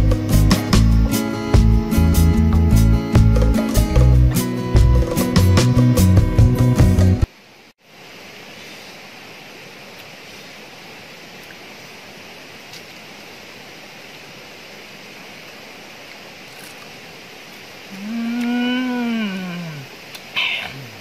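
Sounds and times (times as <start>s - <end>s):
guitar music: 0.0s - 7.3s
forest stream running water: 7.0s - 21.0s.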